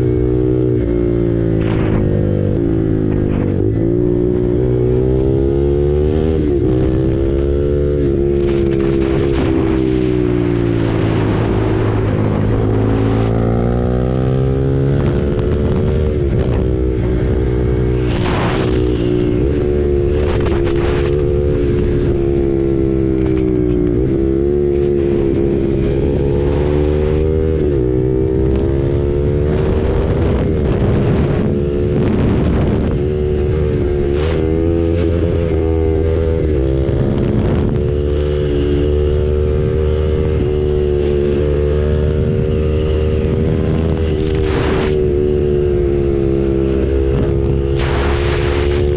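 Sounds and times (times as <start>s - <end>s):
motorcycle engine running: 0.0s - 48.9s
rushing noise: 47.7s - 48.9s.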